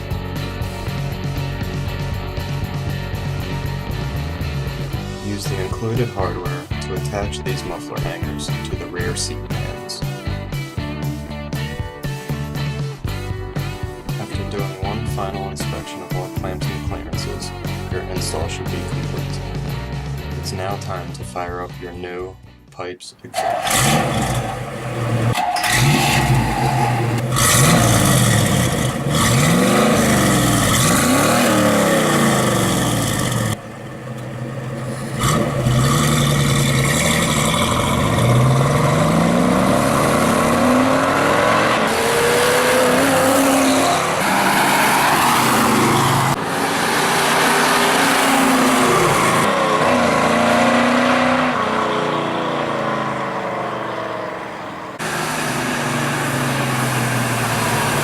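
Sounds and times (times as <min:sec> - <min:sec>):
car engine revving: 0:23.2 - 0:58.0.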